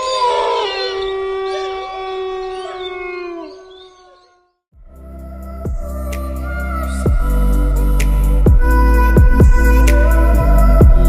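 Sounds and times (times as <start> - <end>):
wolves howling in chorus: 0.0 - 4.5
music with a beat: 5.6 - 11.0.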